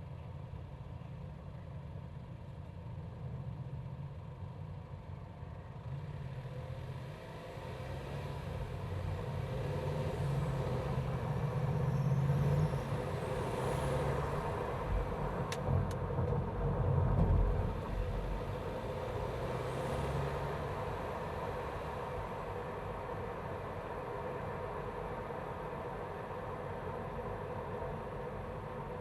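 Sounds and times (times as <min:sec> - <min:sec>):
car engine humming: 0:10.4 - 0:24.3.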